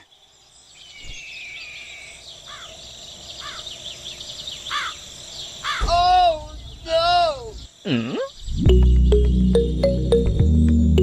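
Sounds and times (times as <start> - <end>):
insect trill: 0.0 - 10.1
birds chirping: 0.0 - 11.0.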